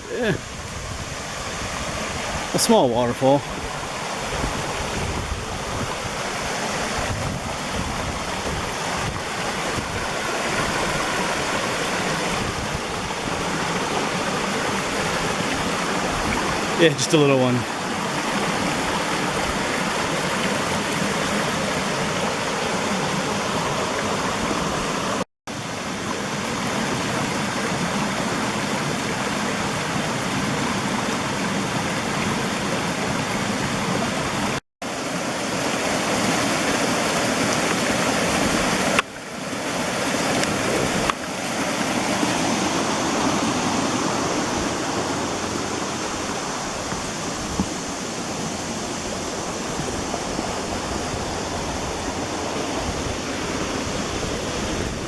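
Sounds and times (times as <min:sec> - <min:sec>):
waterfall splashing into a pool: 0:05.9 - 0:48.8.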